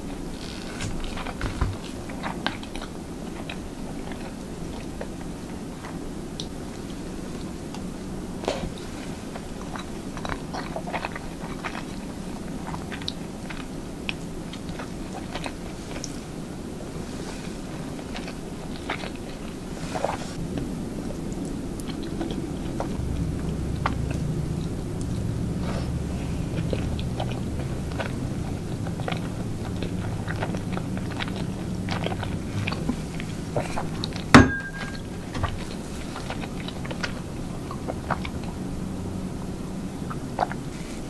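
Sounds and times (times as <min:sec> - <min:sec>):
chewing soft food: 0:00.0 - 0:41.0
low steady hum: 0:00.0 - 0:41.0
sharp clink with ringing tone: 0:34.4 - 0:35.0.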